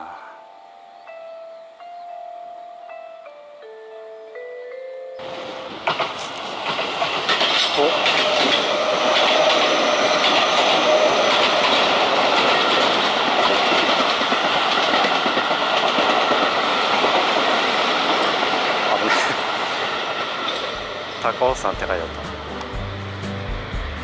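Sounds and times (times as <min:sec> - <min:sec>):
train wheels rushing over rails: 0:05.2 - 0:22.9.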